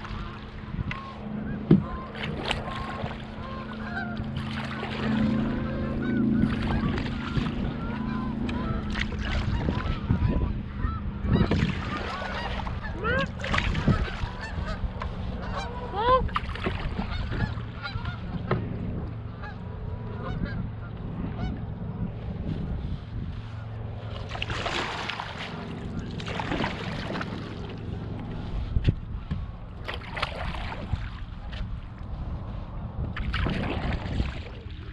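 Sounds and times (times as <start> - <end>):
geese honking: 0.0 - 16.2, 16.9 - 18.5, 19.2 - 21.7
steady low hum: 0.0 - 34.9.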